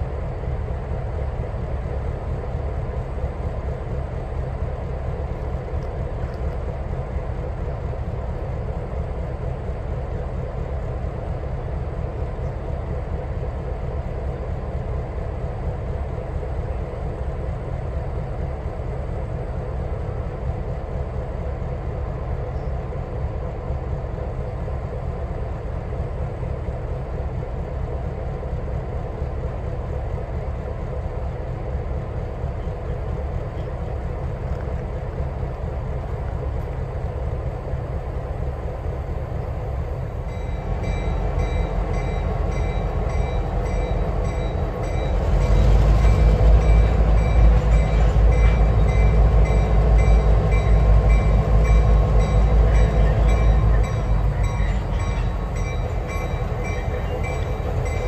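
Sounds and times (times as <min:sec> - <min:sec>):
train rumbling by: 0:00.0 - 0:58.0.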